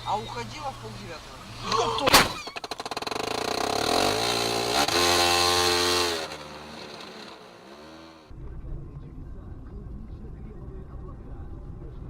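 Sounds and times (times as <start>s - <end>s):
vehicle engine revving: 2.6s - 8.3s.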